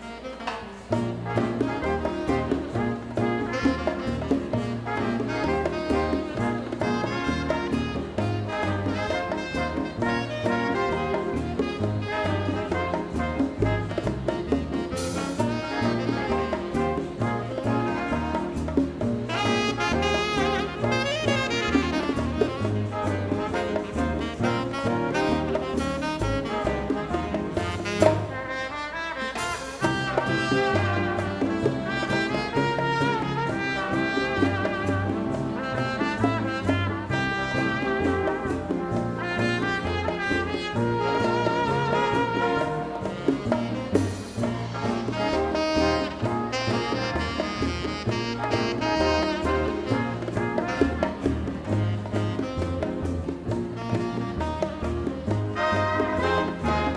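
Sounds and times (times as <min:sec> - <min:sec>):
saxophones: 0:00.0 - 0:56.9
trombones: 0:00.0 - 0:56.9
trumpets: 0:00.0 - 0:56.9
bass pattern: 0:01.0 - 0:28.3.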